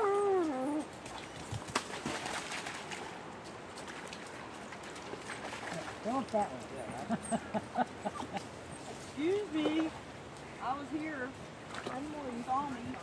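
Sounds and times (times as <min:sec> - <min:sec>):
clicks and knocks among rocks: 0:01.0 - 0:05.8.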